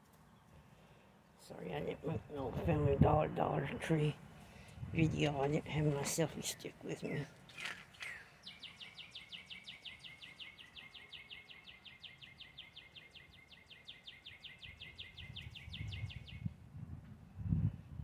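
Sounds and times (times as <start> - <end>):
traffic rumble: 0.0 - 8.8
songbird trilling: 7.5 - 16.5.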